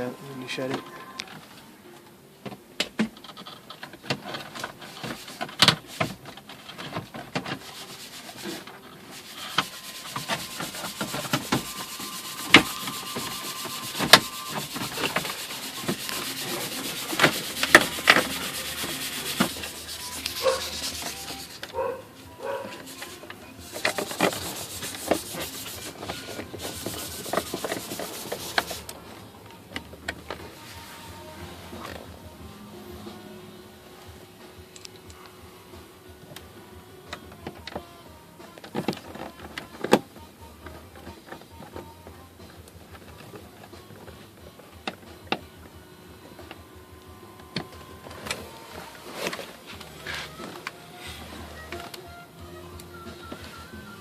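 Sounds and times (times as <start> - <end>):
plastic parts rubbing and scraping: 3.0 - 32.1, 37.1 - 45.4, 47.5 - 52.2.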